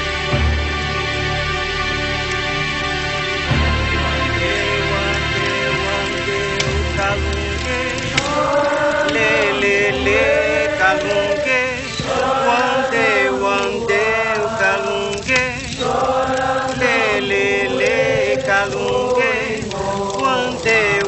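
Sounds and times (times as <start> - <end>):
group of voices chanting: 3.6 - 21.0.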